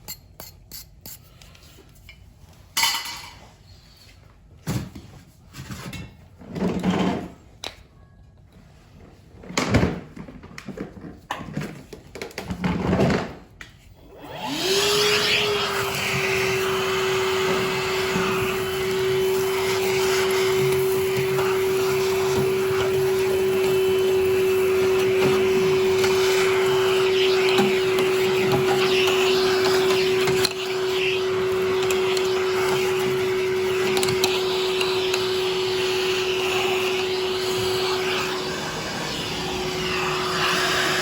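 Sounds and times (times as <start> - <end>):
small electric motor whining: 14.1 - 41.0.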